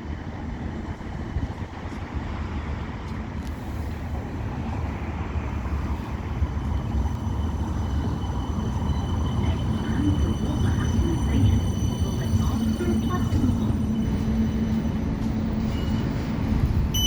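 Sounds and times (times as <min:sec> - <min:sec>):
tram low rumble: 0:00.0 - 0:17.0
thin high whine: 0:05.9 - 0:17.0.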